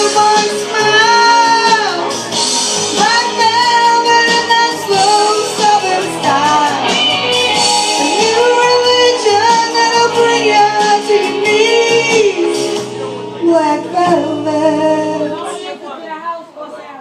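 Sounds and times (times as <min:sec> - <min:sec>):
woman singing: 0:00.0 - 0:02.2, 0:02.9 - 0:16.0
rock ballad band: 0:00.0 - 0:15.6.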